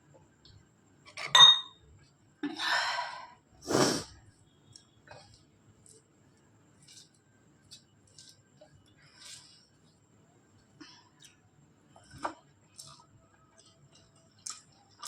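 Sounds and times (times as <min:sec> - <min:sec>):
mouth slurping: 0:03.7 - 0:04.0.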